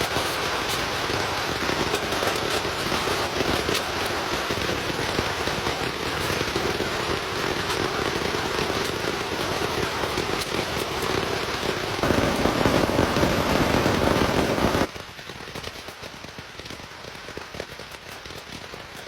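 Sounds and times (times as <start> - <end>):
heavy rain rushing: 0.0 - 14.9
light patter of raindrops: 0.0 - 19.0.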